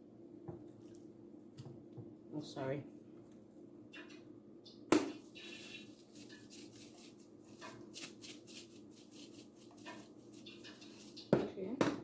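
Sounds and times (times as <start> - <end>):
rustling and crackling of breadcrumbs: 5.4 - 11.8.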